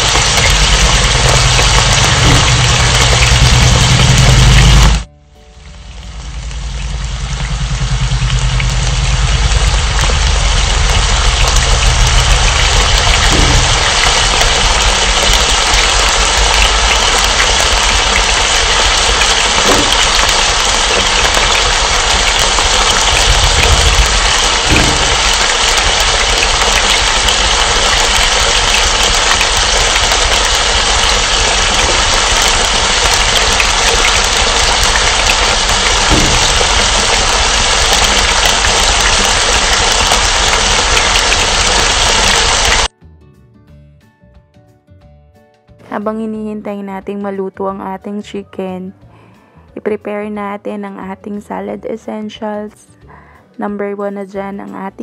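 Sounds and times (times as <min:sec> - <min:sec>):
chicken sizzling in a pan: 0:00.0 - 0:05.1, 0:05.8 - 0:42.9
low hum: 0:00.0 - 0:42.9.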